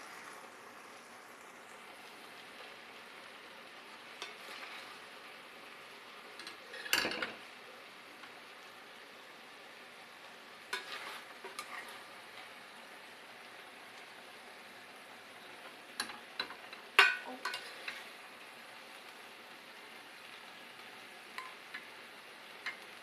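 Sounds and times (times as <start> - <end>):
food sizzling in a pan: 0.0 - 23.0
utensil scraping and knocking pan: 10.8 - 12.0.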